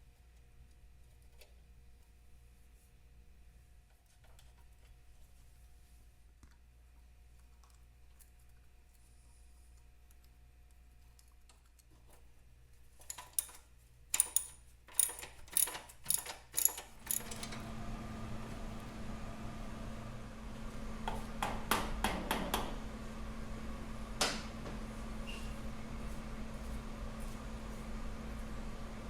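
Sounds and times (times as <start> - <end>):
metallic clicks and clatters: 13.0 - 17.6.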